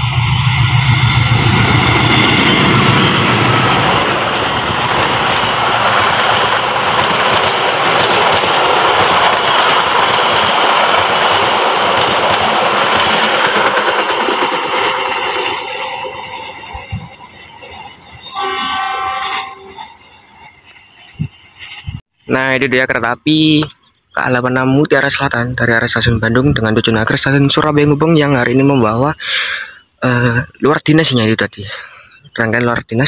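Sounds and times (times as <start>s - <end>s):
diesel locomotive engine drone: 0.0s - 22.0s
train wheels rushing on rail: 0.0s - 22.0s.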